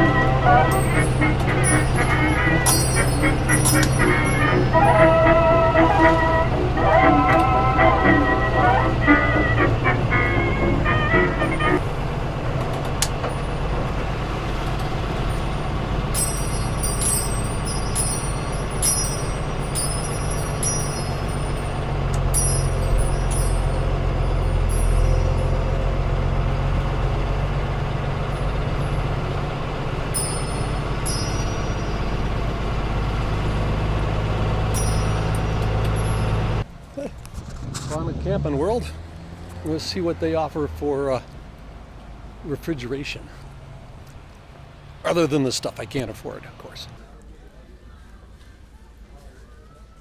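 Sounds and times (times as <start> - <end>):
bus engine drone: 0.0 - 50.0
high-pitched rattles and squeaks: 0.7 - 5.8, 12.6 - 26.7, 28.0 - 33.8.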